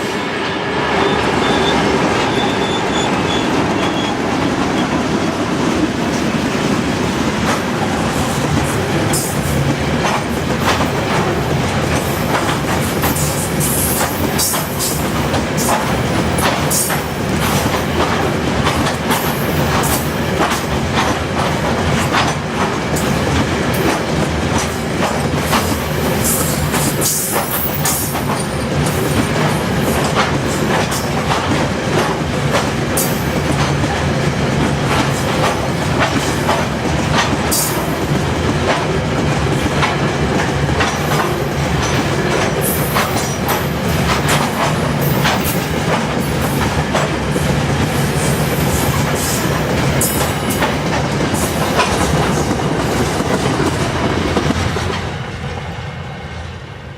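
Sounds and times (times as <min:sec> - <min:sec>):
freight train wheels clickety-clack: 0:00.0 - 0:56.6.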